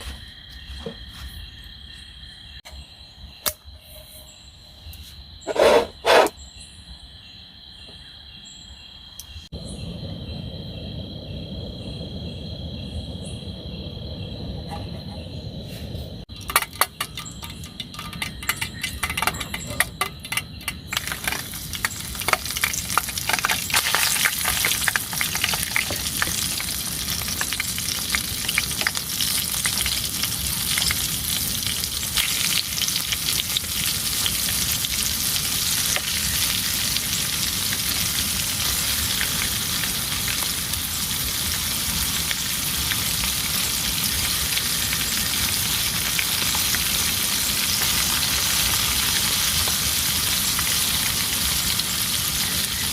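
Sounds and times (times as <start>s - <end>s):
heavy rain: 20.9s - 52.9s.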